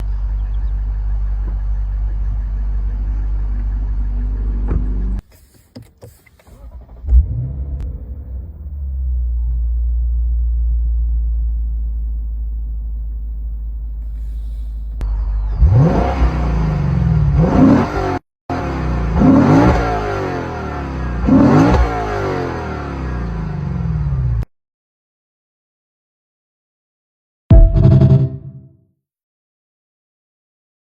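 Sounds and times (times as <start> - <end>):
car engine exhaust rumble: 0.0 - 22.2
engine revving and accelerating: 7.0 - 9.5, 14.4 - 24.4.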